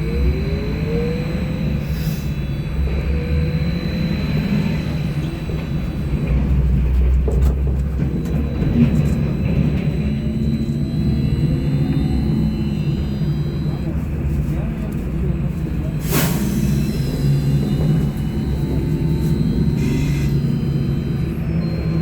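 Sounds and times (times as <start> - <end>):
electric drive hum: 0.0 - 7.2, 7.8 - 13.9, 16.5 - 22.0
faint rising whines: 0.0 - 14.0, 15.7 - 22.0
trolleybus running rumble: 0.0 - 22.0
thin high whine: 16.0 - 22.0.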